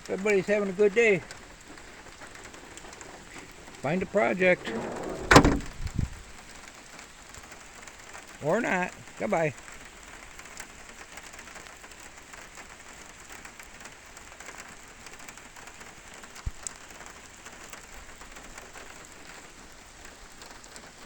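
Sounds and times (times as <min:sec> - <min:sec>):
steady rain falling: 0:00.0 - 0:21.0
short low thump: 0:04.0 - 0:06.1.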